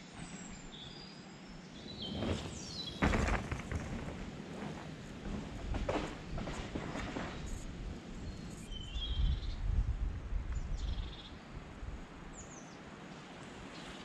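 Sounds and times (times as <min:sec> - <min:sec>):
steady outdoor hiss: 0:00.0 - 0:14.0
birds chirping: 0:00.6 - 0:03.9
microphone rumble: 0:02.0 - 0:11.0.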